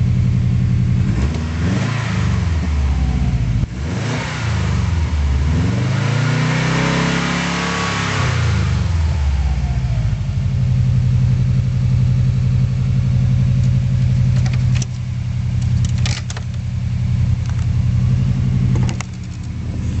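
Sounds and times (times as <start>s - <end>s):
car engine idling: 0.0s - 3.9s, 8.8s - 20.0s.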